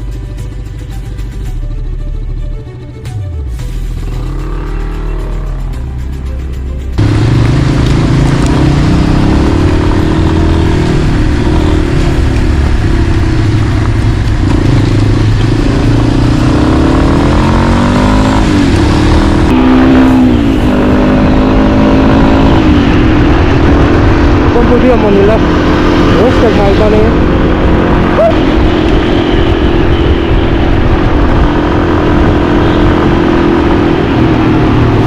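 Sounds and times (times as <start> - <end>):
motorcycle engine revving: 3.9 - 6.0, 6.9 - 35.0
wind on microphone: 27.0 - 34.2.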